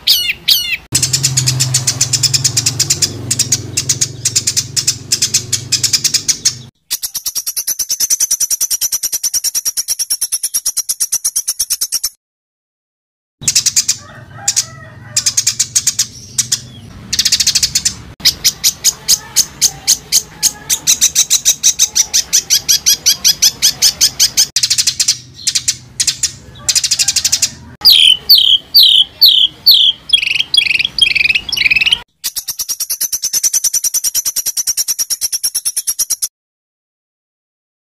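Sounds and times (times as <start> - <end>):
songbird singing: 0.0 - 12.2, 13.4 - 36.3.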